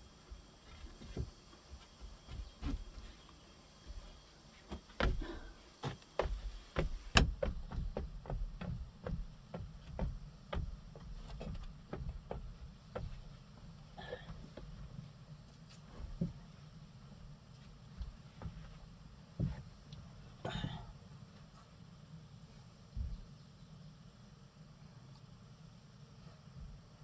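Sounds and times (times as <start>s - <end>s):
wood knocks and taps: 6.2s - 13.2s.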